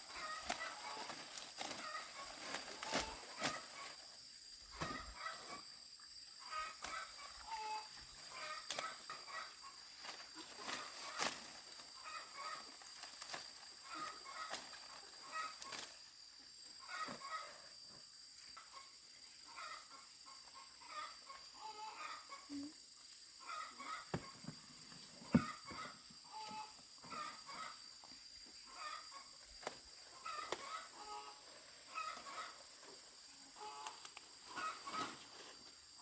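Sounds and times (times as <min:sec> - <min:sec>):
chickens clucking: 0:00.1 - 0:05.7, 0:06.4 - 0:16.0, 0:16.8 - 0:17.5, 0:18.6 - 0:35.3.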